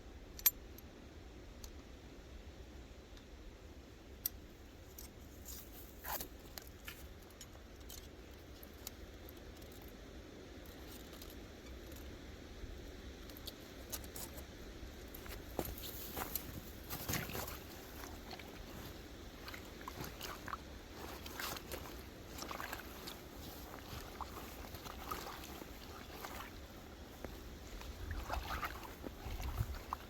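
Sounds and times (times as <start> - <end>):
wind rumble on microphone: 9.6 - 30.0.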